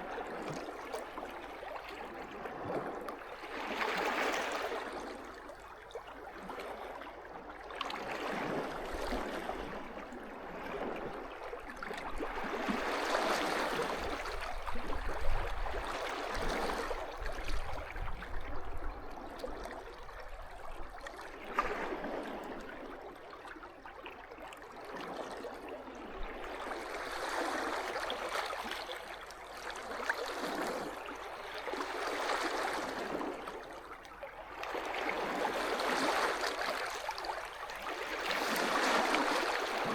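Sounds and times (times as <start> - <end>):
waves washing on shore: 34.6 - 39.9.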